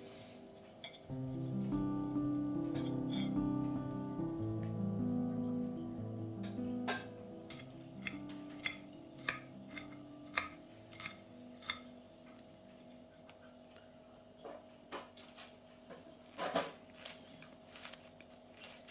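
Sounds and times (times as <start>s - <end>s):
cutlery clinking on a dish: 6.9s - 11.9s.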